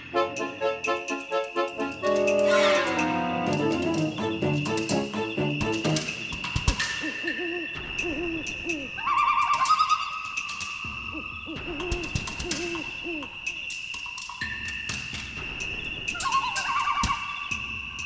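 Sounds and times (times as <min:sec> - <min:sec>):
owl hooting: 0:02.1 - 0:13.8, 0:16.2 - 0:17.7.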